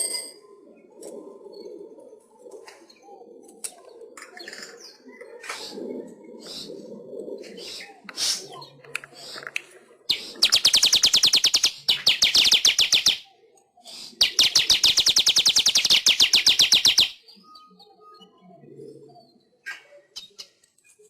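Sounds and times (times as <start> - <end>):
bird chatter: 2.4 - 6.8, 7.4 - 17.8
weaver bird rattling trill: 10.1 - 13.3, 14.0 - 17.2.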